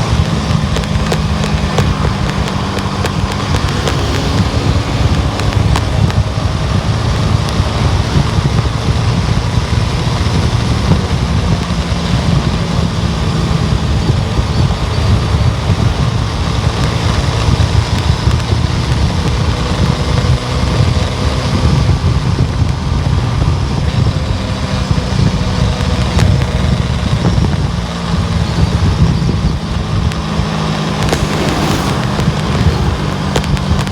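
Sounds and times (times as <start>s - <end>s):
car driving on road: 0.0s - 33.9s.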